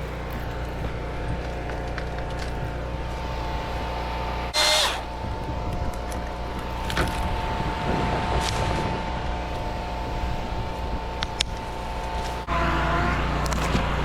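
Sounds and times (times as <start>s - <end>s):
chainsaw running: 0.0s - 14.0s
loud burst of noise: 3.0s - 14.0s.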